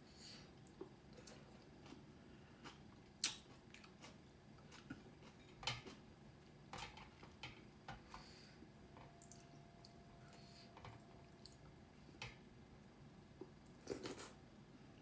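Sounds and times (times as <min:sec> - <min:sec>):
soft chewing: 0:00.4 - 0:12.5, 0:13.3 - 0:14.4.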